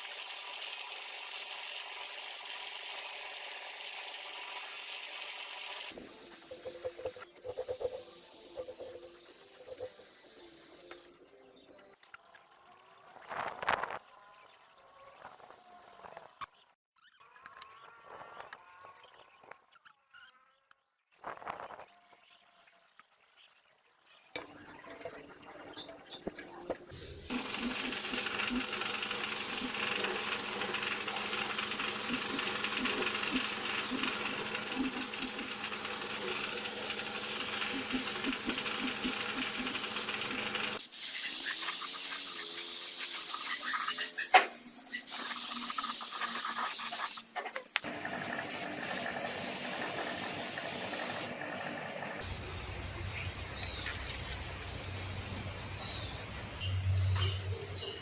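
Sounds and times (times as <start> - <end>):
loud steady hiss: 27.3 - 43.3.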